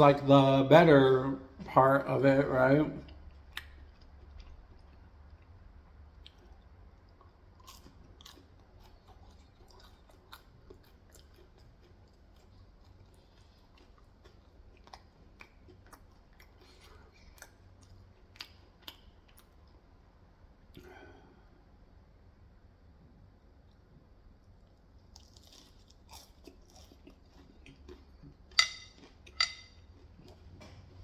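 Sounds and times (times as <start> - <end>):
chewing and biting fried chicken: 3.0 - 20.0, 23.6 - 30.9.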